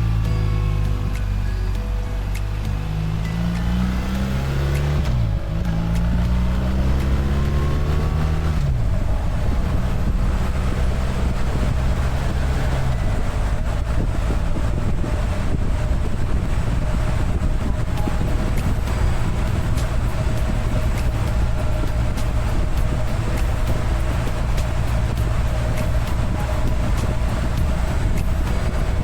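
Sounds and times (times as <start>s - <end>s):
motorcycle engine accelerating: 0.0s - 29.0s
wind rushing: 0.0s - 29.0s.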